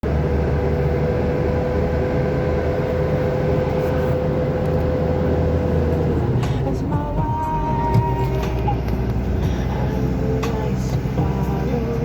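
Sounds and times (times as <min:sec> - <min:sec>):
constant hum: 0:00.0 - 0:12.0
road and wind noise: 0:00.0 - 0:12.0
vehicle driving rumble: 0:00.0 - 0:12.0.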